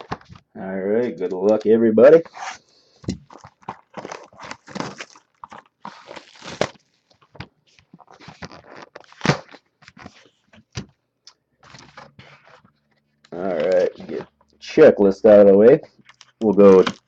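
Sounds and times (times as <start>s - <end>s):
plastic shrink-wrap crinkling: 1.1s - 10.5s, 16.0s - 17.0s.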